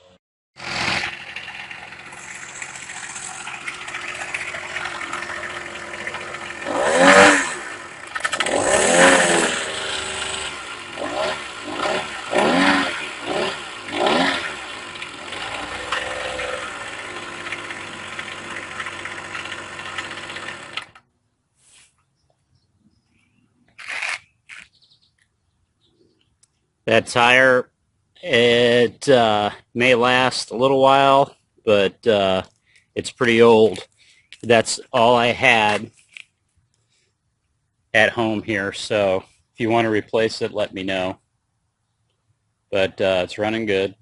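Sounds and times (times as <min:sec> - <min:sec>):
two-stroke engine revving: 0:00.6 - 0:21.0.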